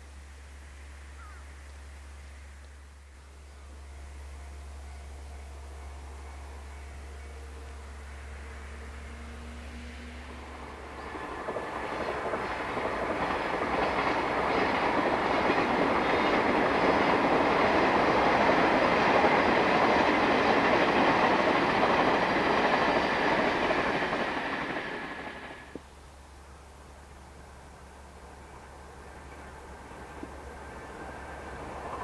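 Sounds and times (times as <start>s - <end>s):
electric train passing: 1.9s - 32.0s.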